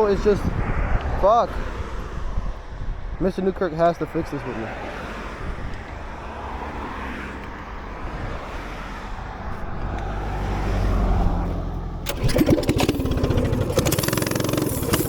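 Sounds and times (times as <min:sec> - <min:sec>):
vehicle passing with low drone: 0:04.1 - 0:15.0
minibike engine running rough: 0:12.0 - 0:15.0.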